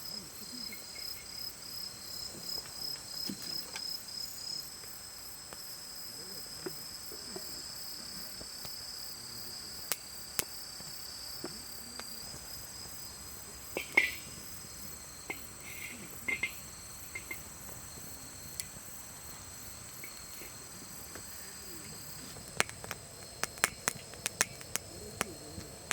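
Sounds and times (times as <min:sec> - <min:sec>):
night insects trilling: 0:00.0 - 0:25.9
sharp crackles and clicks: 0:22.2 - 0:25.9.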